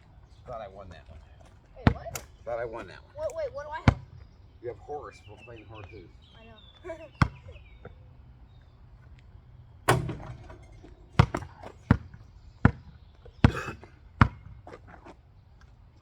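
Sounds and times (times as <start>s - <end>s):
basketball bouncing: 9.9s - 14.9s.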